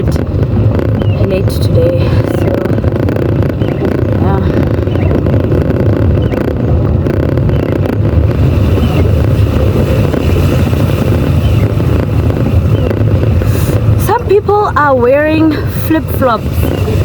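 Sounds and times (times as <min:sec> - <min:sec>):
car cabin rumble: 0:00.0 - 0:17.0
heavy rain on car: 0:00.0 - 0:17.0.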